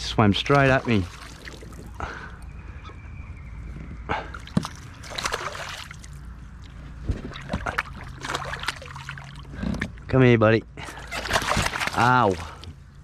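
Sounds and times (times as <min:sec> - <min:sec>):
water splashing: 0:00.0 - 0:02.5, 0:04.2 - 0:09.7, 0:10.9 - 0:12.7.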